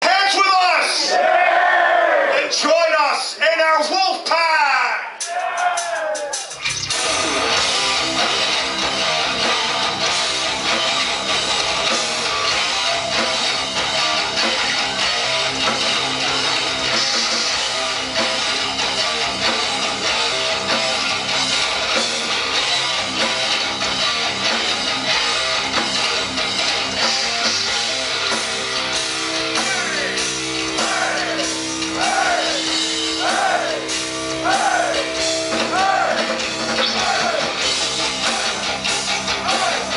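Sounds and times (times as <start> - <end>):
heavy rock band playing live: 5.2 - 39.9
guitar swooping pitch bends: 6.6 - 35.6.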